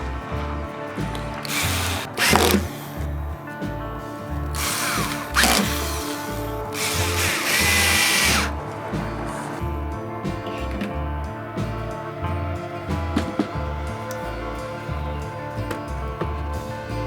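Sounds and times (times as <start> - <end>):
background music: 0.0 - 17.0
power drill driving screws: 1.3 - 3.1, 4.5 - 8.6.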